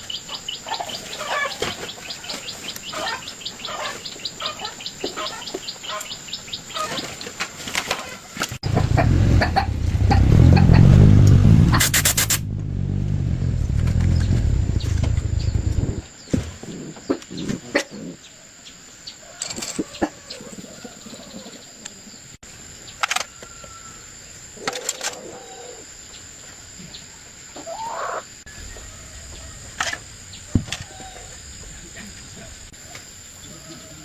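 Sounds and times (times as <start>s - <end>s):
chicken clucking: 0.3s - 7.2s.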